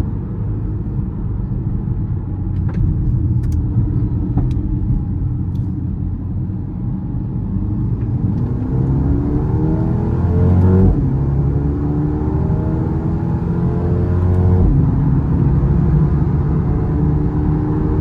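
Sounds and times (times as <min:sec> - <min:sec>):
car engine revving: 0:07.6 - 0:18.0.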